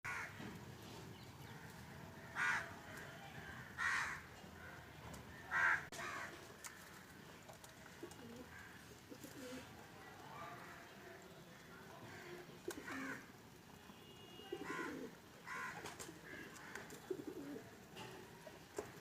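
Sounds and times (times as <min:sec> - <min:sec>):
pigeons calling: 0:05.3 - 0:09.7, 0:12.0 - 0:13.3, 0:14.5 - 0:19.0
pigeons cooing: 0:05.5 - 0:09.8, 0:12.0 - 0:13.4, 0:14.5 - 0:19.0.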